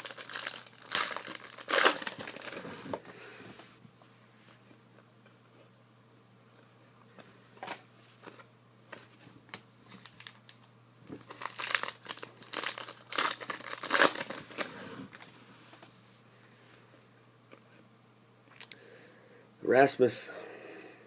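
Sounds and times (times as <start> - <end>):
card pack wrapper crinkling: 0.0 - 3.0, 9.9 - 14.7.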